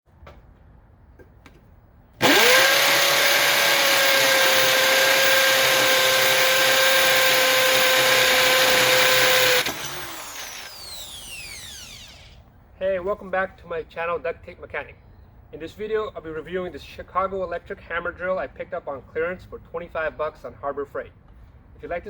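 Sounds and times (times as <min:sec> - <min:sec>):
hammer drill motor whining: 0:02.2 - 0:12.4.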